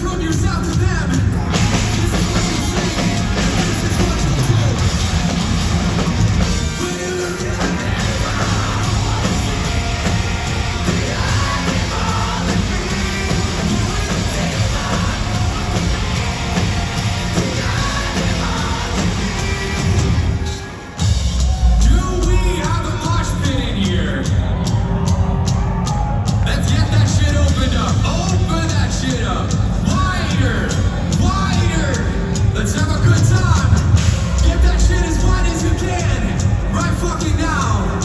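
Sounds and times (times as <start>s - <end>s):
distorted guitars: 0.0s - 38.0s
drum kit: 0.0s - 38.0s
live heavy rock band: 0.0s - 38.0s
person singing or shouting: 6.6s - 20.7s.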